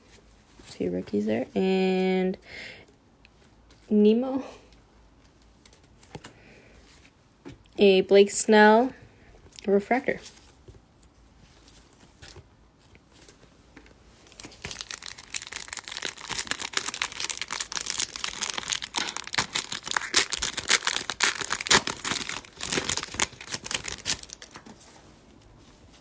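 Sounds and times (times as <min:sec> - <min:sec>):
wrapper tearing and crinkling: 0:14.2 - 0:24.8.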